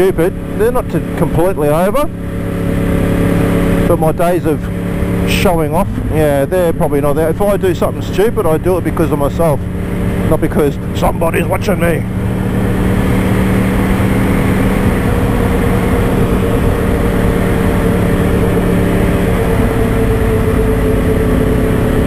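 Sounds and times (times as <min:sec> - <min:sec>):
motorcycle engine cruising: 0:00.0 - 0:22.0
wind noise: 0:12.1 - 0:22.0.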